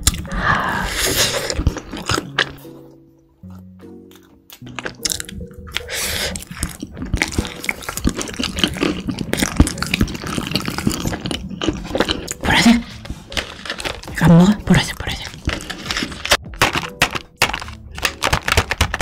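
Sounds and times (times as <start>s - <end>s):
person chewing crunchily: 0.0s - 19.0s.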